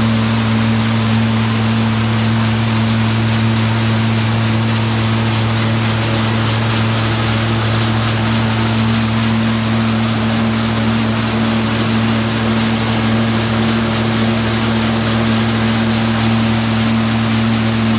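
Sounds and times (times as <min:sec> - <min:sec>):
nut thresher machine running: 0:00.0 - 0:17.9.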